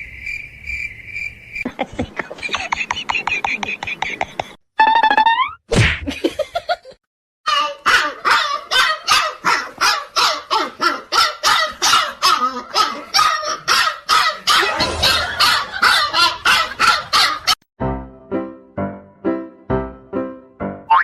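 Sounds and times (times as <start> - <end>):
dog barking rapidly: 7.8 - 17.6.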